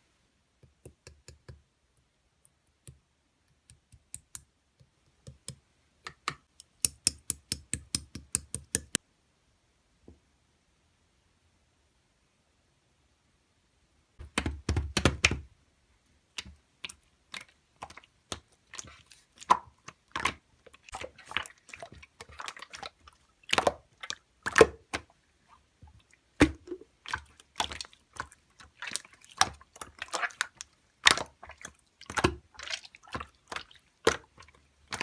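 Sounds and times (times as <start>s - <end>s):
slime squishing and clicking: 26.4s - 35.0s.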